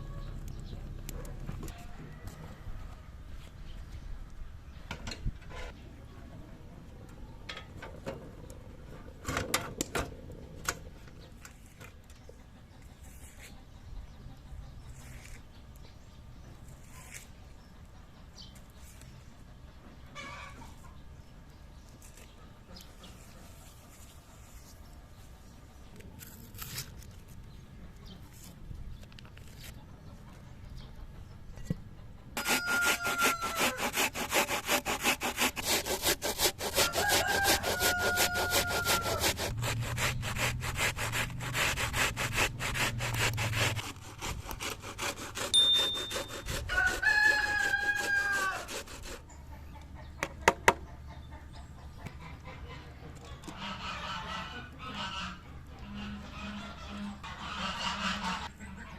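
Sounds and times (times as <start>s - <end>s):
rooster crowing: 1.7s - 3.1s, 32.4s - 33.8s, 36.8s - 39.4s, 46.7s - 48.8s
rhythmic scraping strokes: 32.4s - 49.2s.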